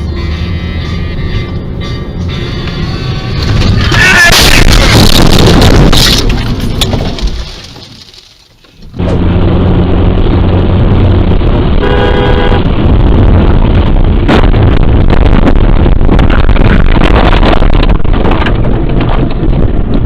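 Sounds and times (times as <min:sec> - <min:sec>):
car horn: 0:00.0 - 0:05.2, 0:11.6 - 0:12.9
vehicle engine and road rumble: 0:00.0 - 0:20.0
sharp knocks and rattles: 0:05.0 - 0:08.9.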